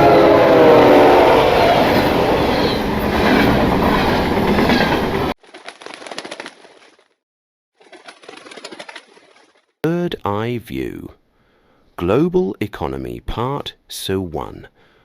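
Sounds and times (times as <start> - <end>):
train clickety-clack on rails: 1.8 - 5.3.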